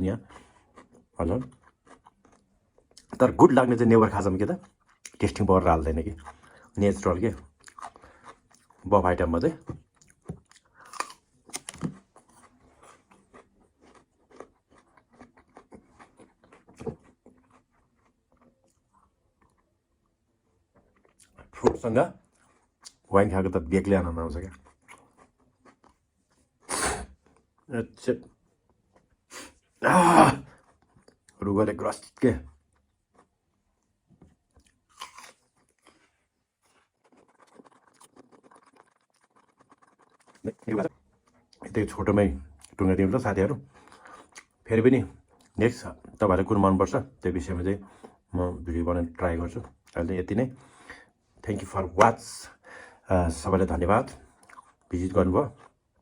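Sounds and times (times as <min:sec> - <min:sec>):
person chewing food: 0:00.2 - 0:03.2, 0:04.5 - 0:05.4, 0:06.1 - 0:23.1, 0:24.0 - 0:27.7, 0:28.3 - 0:31.4, 0:32.5 - 0:41.6, 0:43.6 - 0:46.1, 0:47.8 - 0:48.3, 0:54.2 - 0:56.0
wet mouth chewing clicks: 0:09.8 - 0:19.7, 0:36.7 - 0:40.9.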